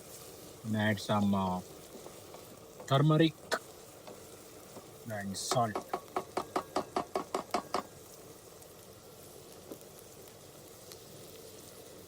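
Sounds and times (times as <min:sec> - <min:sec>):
onions sizzling in a pan: 0:00.0 - 0:12.0
spoon stirring in a pan: 0:05.5 - 0:08.0.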